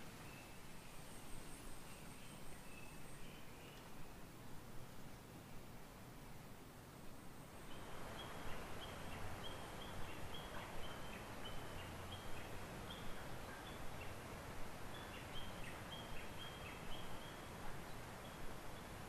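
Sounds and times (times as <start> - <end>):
steady background hiss: 0.0 - 19.0
birds chirping: 0.1 - 4.3, 7.6 - 14.2.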